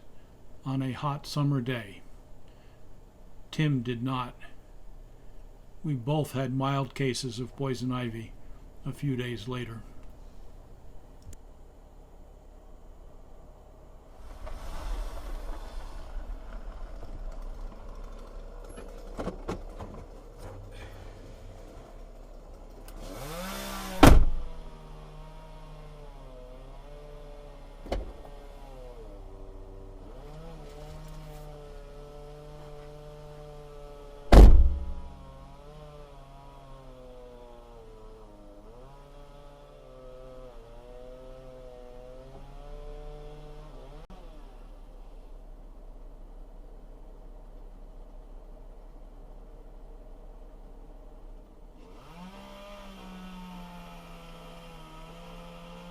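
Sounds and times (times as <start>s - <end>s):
small engine running: 14.2s - 45.2s, 51.8s - 55.9s
loud sharp thuds: 23.9s - 24.6s, 34.3s - 35.3s.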